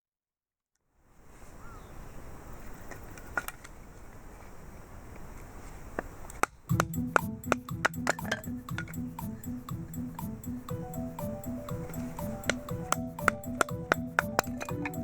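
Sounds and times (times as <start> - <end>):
music with pitched notes and clinks: 6.7 - 15.0.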